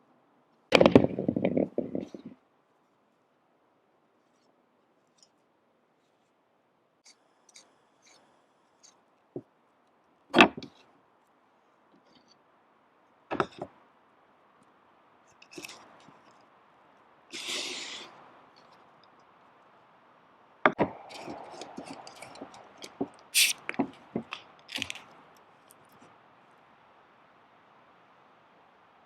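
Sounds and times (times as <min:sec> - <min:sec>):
short hiss: 0:17.4 - 0:18.2, 0:23.4 - 0:23.7.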